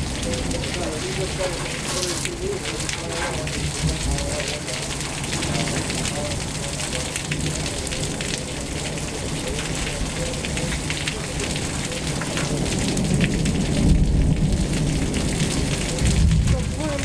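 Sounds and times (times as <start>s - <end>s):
heavy rain hiss: 0.0s - 17.0s
low thunder rumble: 0.0s - 17.0s.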